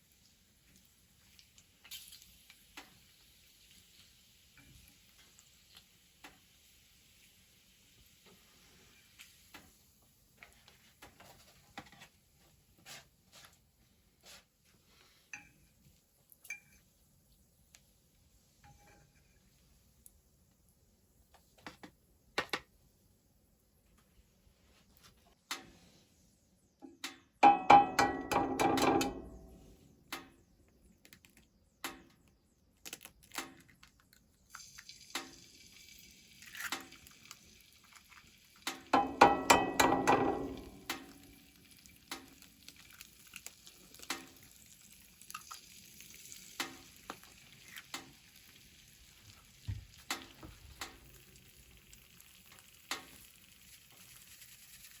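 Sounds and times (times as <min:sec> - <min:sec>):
food sizzling in a hot pan: 0:00.0 - 0:11.4, 0:34.5 - 0:55.0
metal utensil beating metal dish: 0:27.4 - 0:29.4, 0:39.0 - 0:41.1.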